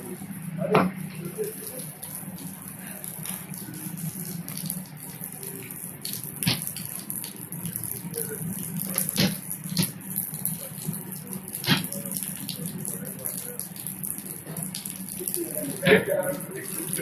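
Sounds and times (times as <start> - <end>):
steady rain: 0.0 - 17.0
drops tapping a hard surface: 8.9 - 10.0.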